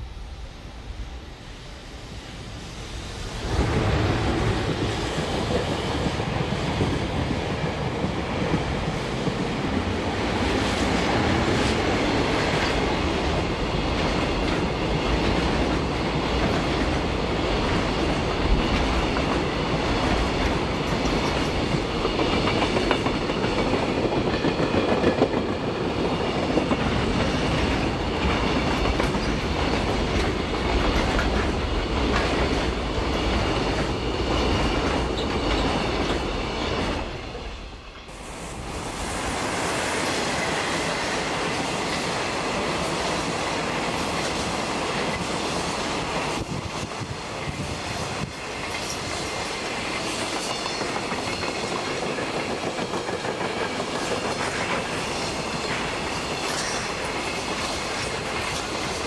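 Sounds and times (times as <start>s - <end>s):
train wheels clattering over rail joints: 3.6s - 37.1s, 46.2s - 59.0s.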